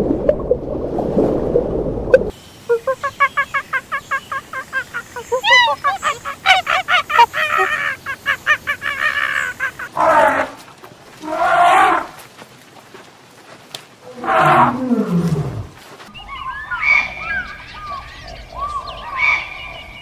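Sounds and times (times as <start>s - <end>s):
birds chirping: 2.3s - 12.2s, 12.8s - 20.0s
long pitched animal cries: 2.9s - 10.6s.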